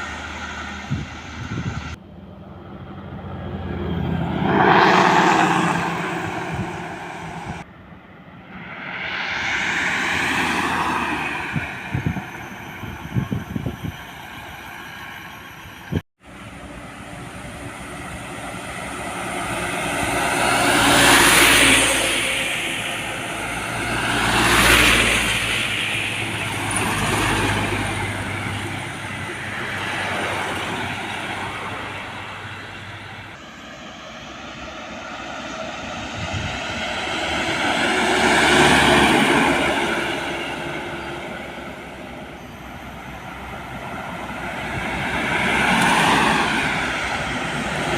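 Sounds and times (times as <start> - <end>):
low engine drone: 0.0 - 47.9
trucks passing by: 0.0 - 47.9.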